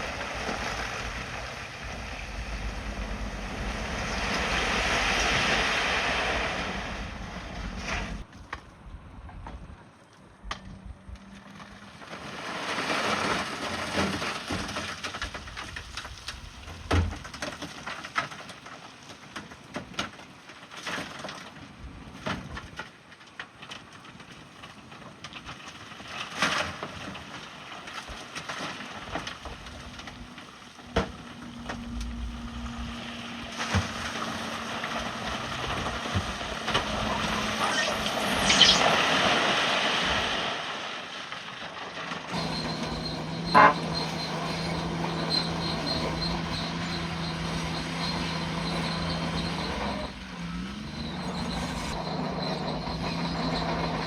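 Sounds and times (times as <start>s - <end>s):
bulldozer grinding and scraping rock: 0.0s - 54.0s
faint steady engine tone: 29.2s - 38.9s, 42.4s - 54.0s.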